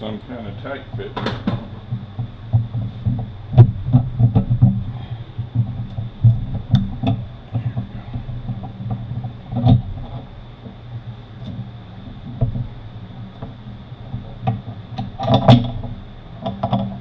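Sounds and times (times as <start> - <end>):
knocks and thumps on bench: 1.0 - 10.8.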